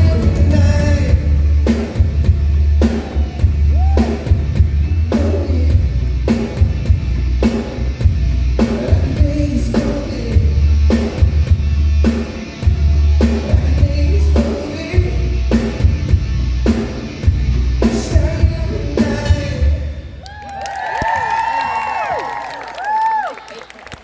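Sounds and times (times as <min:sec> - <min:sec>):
person singing: 0:00.0 - 0:02.0, 0:05.1 - 0:06.6, 0:08.6 - 0:11.2, 0:12.7 - 0:15.6, 0:17.8 - 0:19.9
steady drum beat: 0:00.0 - 0:19.8
live rock band playing: 0:00.0 - 0:19.9.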